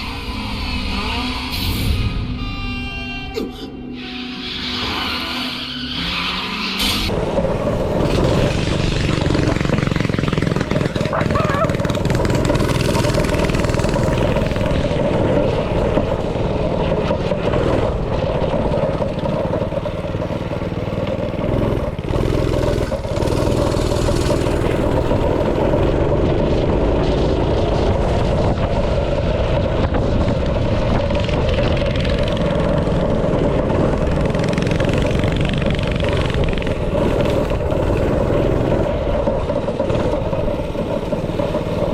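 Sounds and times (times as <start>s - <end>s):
small single-cylinder engine running: 7.2s - 27.0s, 31.0s - 41.9s.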